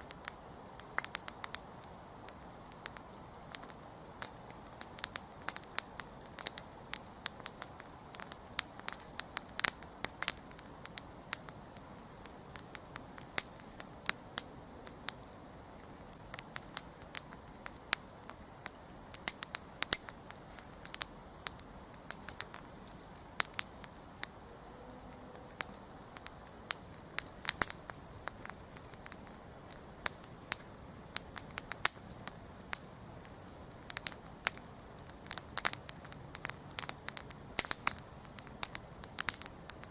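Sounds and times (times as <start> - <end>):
campfire crackling and popping: 0.0 - 39.9
hiss of flames: 0.0 - 39.9.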